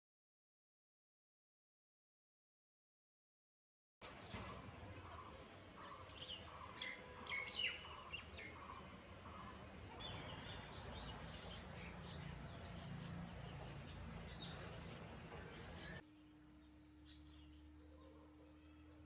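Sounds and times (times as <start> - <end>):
birds chirping: 4.4 - 16.0
low background rumble: 4.7 - 16.0.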